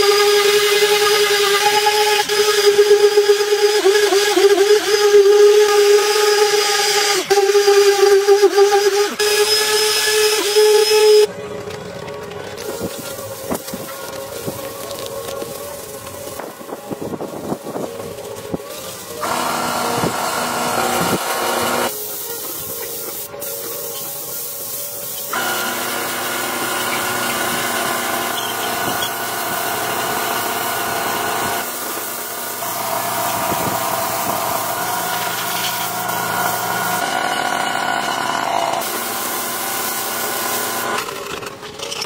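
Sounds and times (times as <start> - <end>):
power tools running: 12.6 - 22.2, 25.3 - 41.6.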